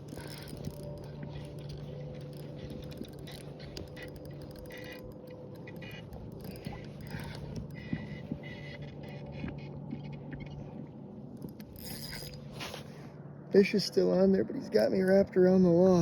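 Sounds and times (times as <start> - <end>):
fishing reel clicking and scraping: 0.0 - 10.2, 11.4 - 12.8
steady low hum: 0.0 - 16.0.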